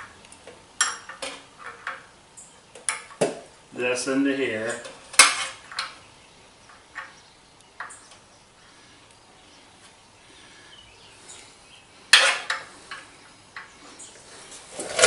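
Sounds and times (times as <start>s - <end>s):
metal tools clinking and clanking: 0.8s - 2.0s.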